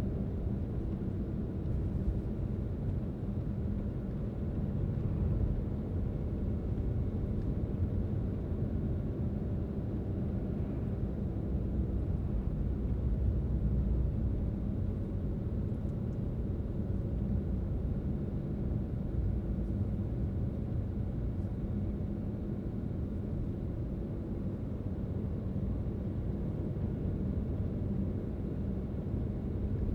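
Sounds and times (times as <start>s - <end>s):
car engine and tyre rumble: 0.2s - 22.0s.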